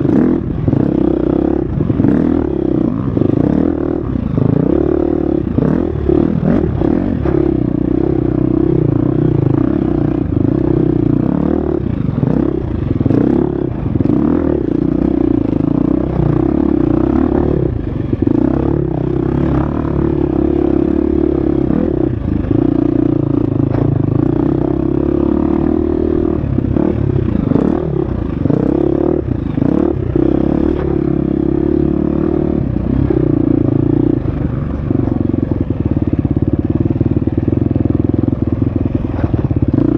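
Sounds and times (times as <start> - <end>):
dirt bike engine revving: 0.0 - 37.6.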